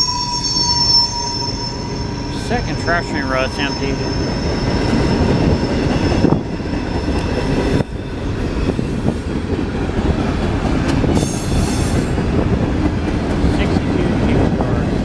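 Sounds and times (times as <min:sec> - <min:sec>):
faint high wheel squeal: 0:00.0 - 0:09.3
train wheels rumbling on rails: 0:00.0 - 0:15.0.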